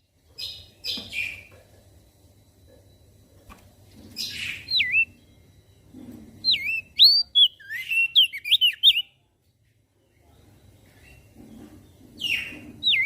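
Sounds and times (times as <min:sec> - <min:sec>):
bird singing whistled notes: 0:04.2 - 0:05.8, 0:06.4 - 0:09.2, 0:12.2 - 0:13.0.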